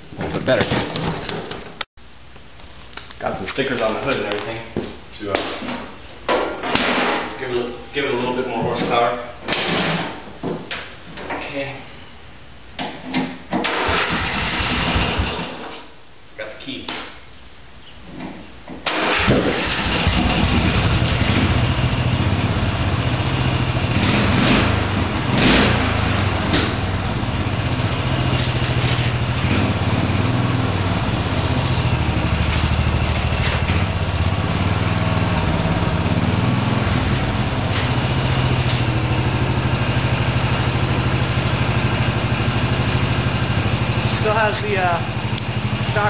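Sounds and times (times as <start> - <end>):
riding mower engine running: 13.7 - 15.5, 18.9 - 46.0.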